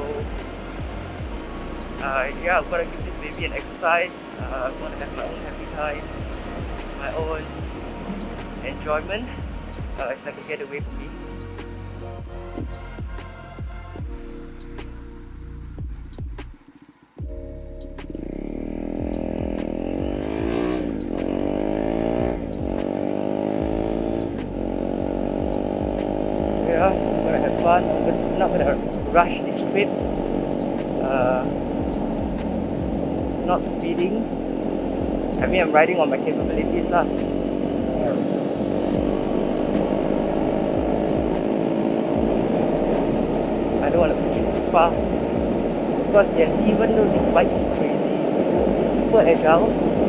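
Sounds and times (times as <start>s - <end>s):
wind rumble on microphone: 0.0s - 10.1s, 23.7s - 50.0s
motorcycle engine accelerating: 0.0s - 13.2s, 17.2s - 50.0s.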